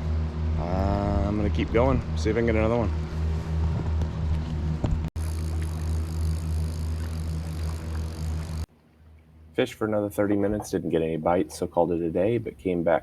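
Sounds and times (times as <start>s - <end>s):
motor humming: 0.0s - 8.7s.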